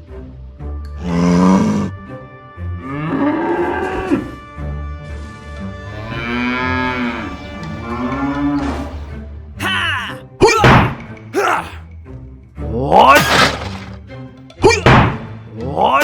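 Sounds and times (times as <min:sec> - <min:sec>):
background music: 0:00.0 - 0:16.0
cow mooing: 0:02.8 - 0:04.4, 0:05.9 - 0:09.0.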